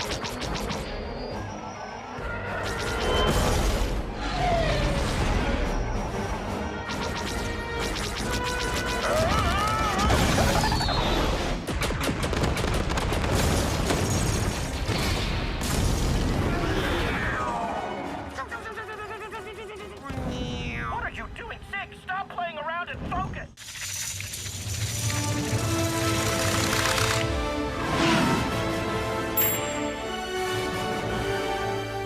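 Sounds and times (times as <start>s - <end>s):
explosions and weapon fire: 7.2s - 17.0s.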